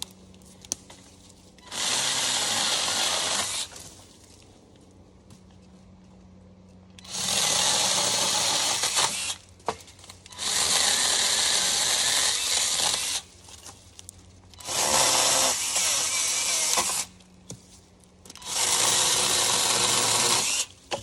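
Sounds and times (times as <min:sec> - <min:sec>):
electric chainsaw cutting wood: 0:01.6 - 0:03.8, 0:07.0 - 0:09.5, 0:10.3 - 0:13.3, 0:14.6 - 0:17.2, 0:18.3 - 0:21.0.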